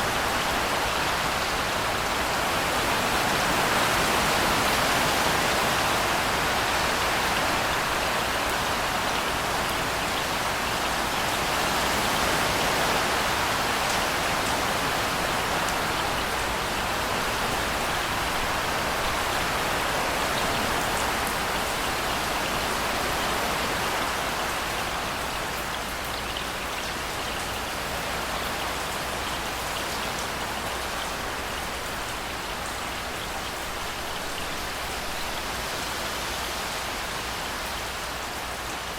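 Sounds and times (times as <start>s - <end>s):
steady rainfall: 0.0s - 38.9s.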